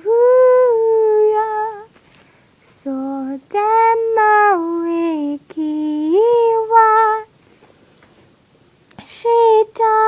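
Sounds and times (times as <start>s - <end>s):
woman singing unaccompanied: 0.0s - 2.0s, 2.6s - 7.3s, 8.9s - 10.0s.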